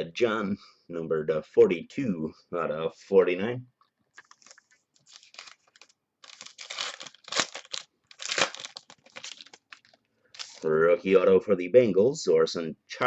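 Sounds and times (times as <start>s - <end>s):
card packaging crinkling and tearing: 4.1s - 10.7s.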